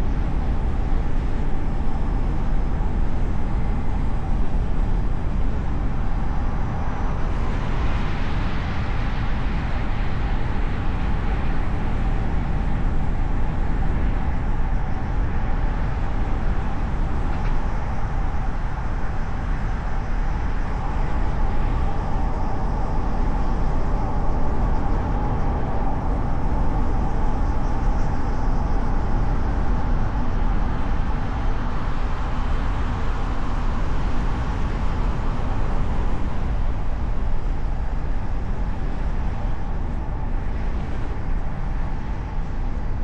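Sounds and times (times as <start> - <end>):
car road and tyre noise: 0.0 - 43.0
wind noise: 0.0 - 43.0.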